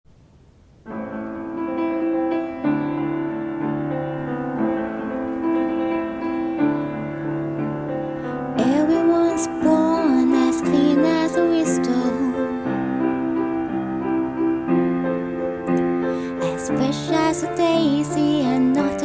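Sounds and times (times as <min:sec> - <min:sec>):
piano chords: 0:00.2 - 0:19.0
person singing: 0:08.3 - 0:13.4, 0:16.2 - 0:19.0.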